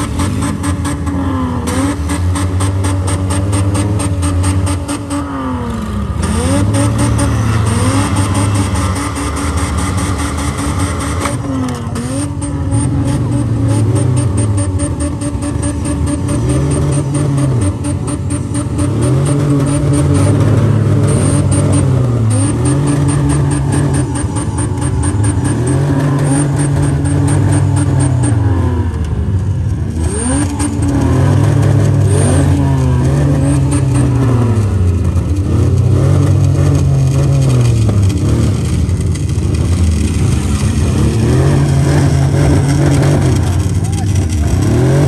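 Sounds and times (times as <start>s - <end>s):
car engines revving hard: 0.0s - 45.0s.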